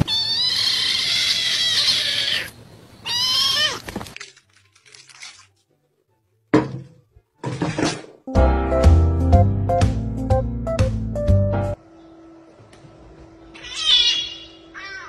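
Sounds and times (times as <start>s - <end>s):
kitten meowing hoarsely: 0.0s - 3.9s.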